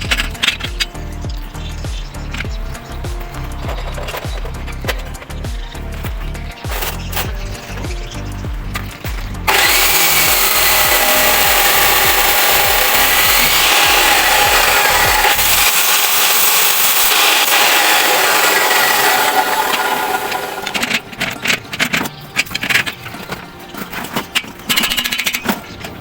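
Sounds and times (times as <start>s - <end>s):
background music with beat: 0.0s - 26.0s
power tool running: 6.6s - 22.0s.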